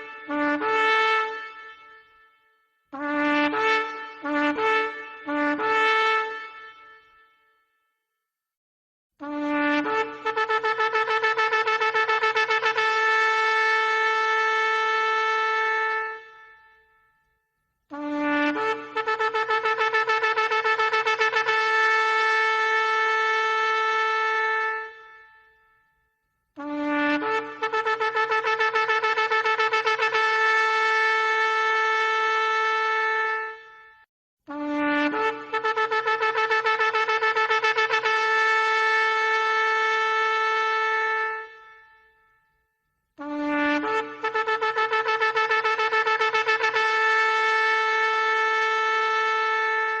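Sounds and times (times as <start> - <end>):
shofar blasts: 0.0 - 2.3, 3.0 - 7.2, 43.2 - 50.0.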